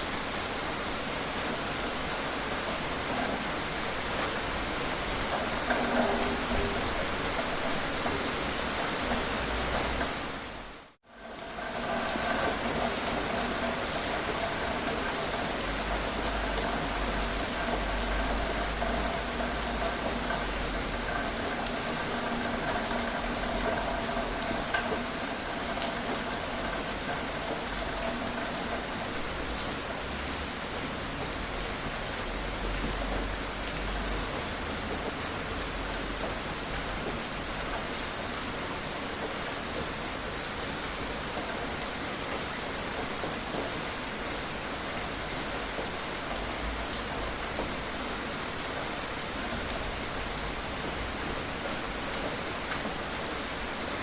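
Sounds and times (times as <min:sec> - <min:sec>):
gentle rain pattering: 0:00.0 - 0:54.0.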